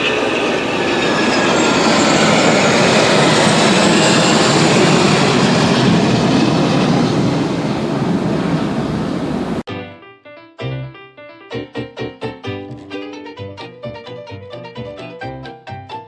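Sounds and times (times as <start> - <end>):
jet aircraft roar: 0.0 - 9.7.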